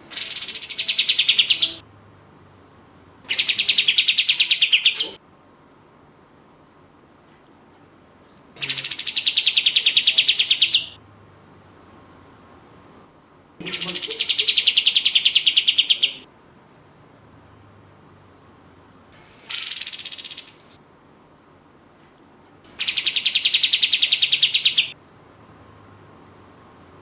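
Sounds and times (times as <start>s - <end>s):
songbird trilling: 0.1s - 1.8s, 3.3s - 5.2s, 8.6s - 11.0s, 13.6s - 16.2s, 19.5s - 20.7s, 22.8s - 25.0s.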